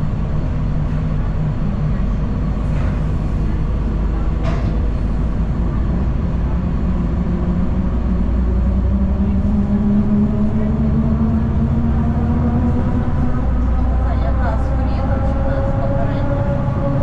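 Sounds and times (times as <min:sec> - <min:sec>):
bus engine and road noise: 0:00.0 - 0:17.0.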